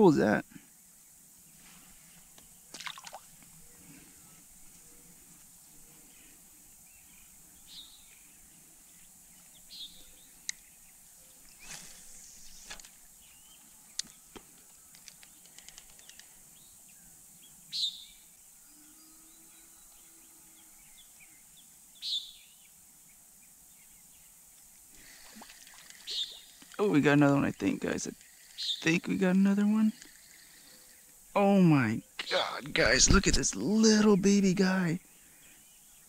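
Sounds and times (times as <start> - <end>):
birds chirping: 0.0 - 36.0
faint hiss: 0.0 - 36.0
faint ticks: 10.4 - 10.7, 13.9 - 16.4, 25.4 - 26.8, 28.0 - 31.2
sharp clicks: 14.9 - 16.3.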